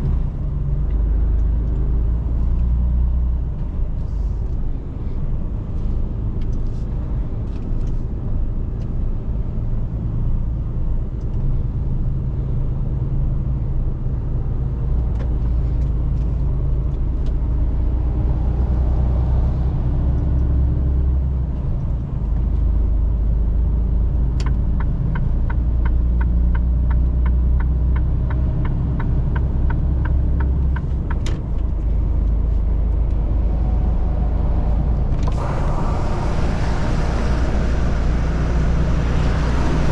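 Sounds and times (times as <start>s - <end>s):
turn signal ticking: 24.2s - 33.3s
diesel truck engine droning: 25.4s - 39.9s.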